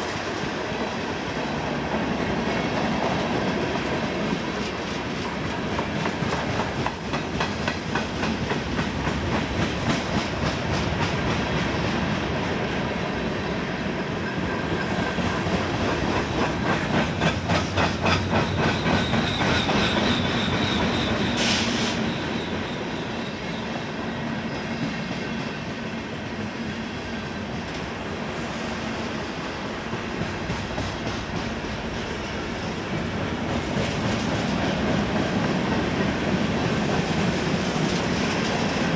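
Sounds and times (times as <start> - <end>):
freight train wheels clicking: 0.0 - 12.8, 13.6 - 22.0, 24.4 - 38.9
faint wheel squeal: 18.4 - 24.8.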